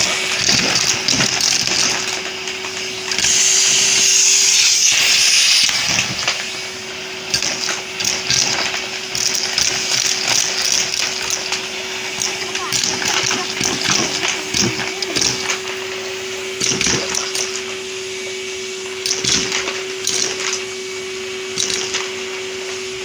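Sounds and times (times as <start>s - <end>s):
vacuum cleaner running: 0.0s - 23.0s
plastic bricks clattering up hose: 7.3s - 16.0s.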